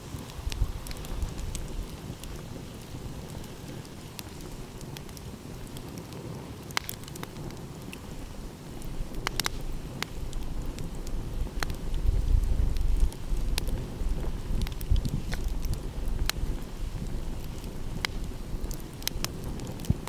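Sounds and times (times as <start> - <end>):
wind: 0.0 - 20.0
wood fire crackling: 0.0 - 20.0.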